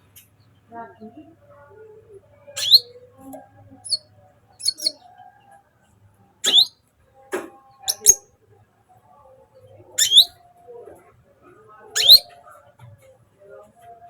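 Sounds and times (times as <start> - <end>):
bird chirping: 2.5 - 2.9, 3.8 - 5.1, 6.4 - 6.7, 7.8 - 8.2, 10.0 - 10.3, 12.0 - 12.3.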